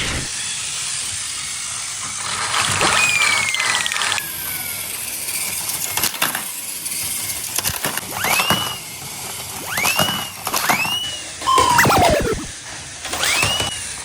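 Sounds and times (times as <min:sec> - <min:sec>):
toy train motor whirring: 0:00.3 - 0:14.0
falling whistle tone: 0:02.9 - 0:04.0, 0:08.1 - 0:08.9, 0:09.6 - 0:12.6.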